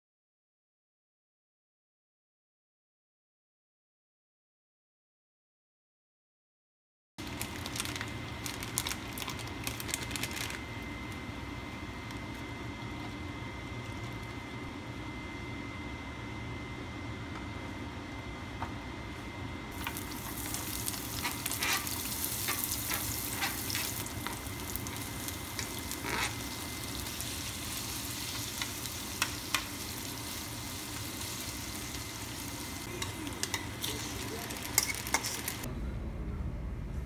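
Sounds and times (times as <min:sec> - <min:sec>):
food sizzling in oil: 0:19.8 - 0:35.7
utensil scraping pan: 0:21.2 - 0:23.9, 0:34.7 - 0:35.6.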